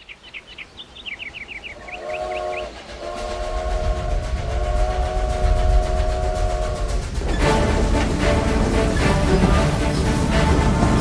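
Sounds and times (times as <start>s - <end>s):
steam train whistle: 2.0s - 9.5s
locomotive chugging: 2.1s - 11.0s.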